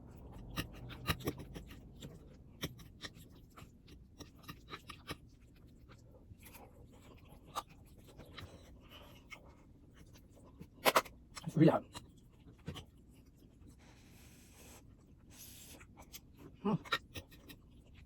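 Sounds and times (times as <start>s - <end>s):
utensil clicking against dish: 0.3s - 3.2s.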